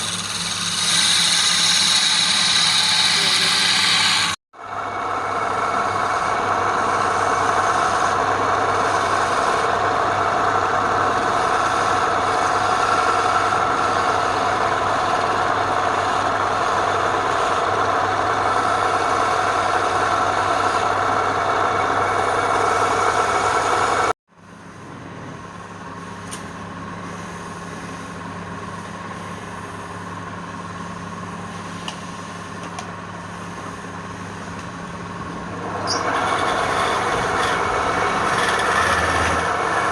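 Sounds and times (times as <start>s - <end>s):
wood lathe motor humming: 0.0s - 24.1s, 35.0s - 39.9s.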